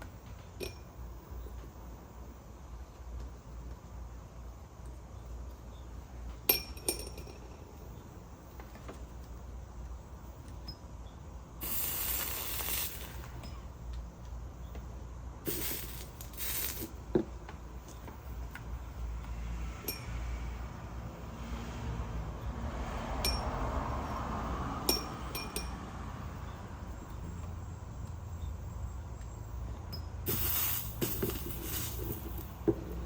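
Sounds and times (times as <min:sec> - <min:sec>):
steady low hum: 0:00.0 - 0:21.4
metallic clink with ringing: 0:00.6 - 0:00.9, 0:06.5 - 0:07.6, 0:19.8 - 0:20.1, 0:23.2 - 0:23.5, 0:24.9 - 0:25.8, 0:29.8 - 0:32.6
flux sizzling under soldering iron: 0:11.6 - 0:13.6, 0:15.5 - 0:17.1, 0:30.3 - 0:32.6.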